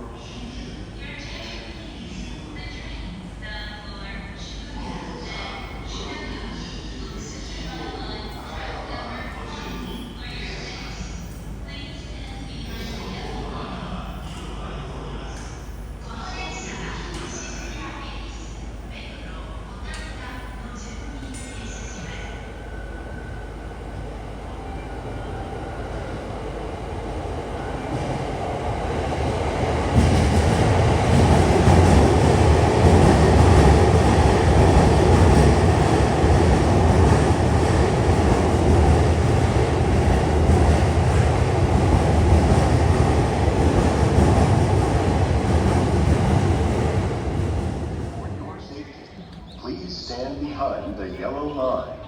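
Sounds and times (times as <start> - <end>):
train wheels rumbling on rails: 19.8 - 48.5.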